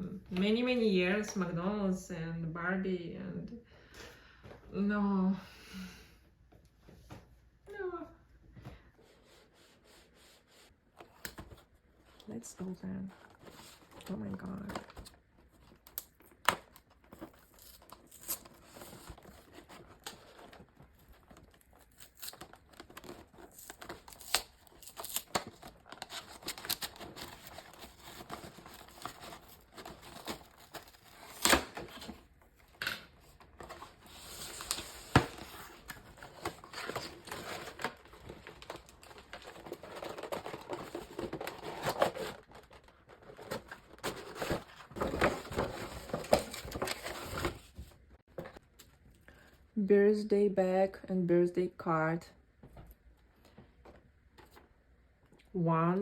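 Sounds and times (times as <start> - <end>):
cardboard and plastic crinkling: 11.0 - 48.6.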